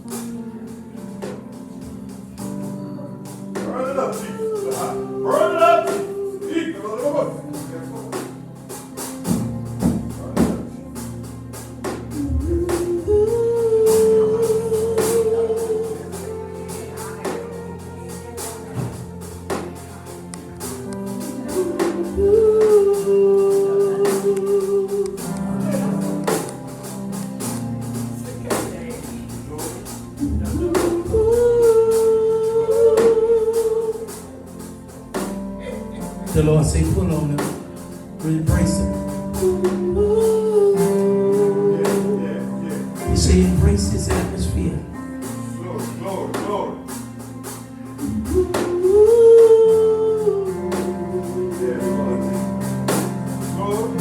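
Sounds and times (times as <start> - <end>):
percussion strikes: 0.0 - 49.7
sustained chords: 0.0 - 54.0
person singing long notes: 3.7 - 7.6, 12.1 - 17.7, 21.4 - 26.1, 30.2 - 34.4, 39.3 - 43.4, 48.1 - 52.3.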